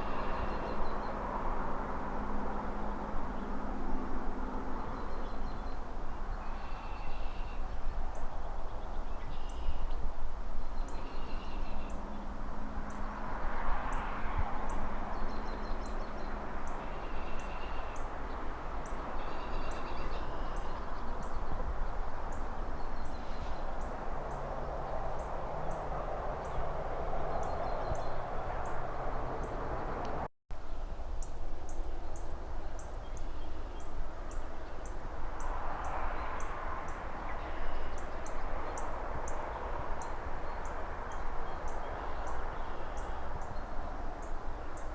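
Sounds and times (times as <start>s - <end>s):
cars passing: 0.0s - 30.3s, 31.3s - 44.9s
distant traffic: 0.0s - 44.9s
rustling trees: 0.0s - 44.9s
birds chirping: 10.6s - 30.3s.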